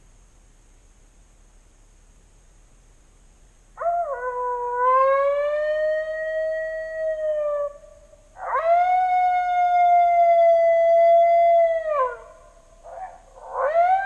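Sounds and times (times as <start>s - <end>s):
coyote howling: 3.8s - 14.0s.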